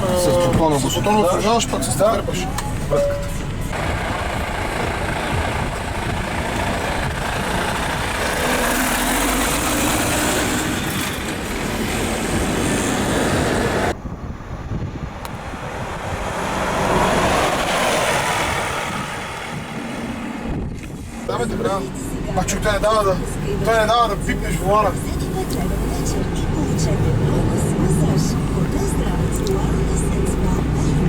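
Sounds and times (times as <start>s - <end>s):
truck engine and road noise: 0.0s - 31.0s.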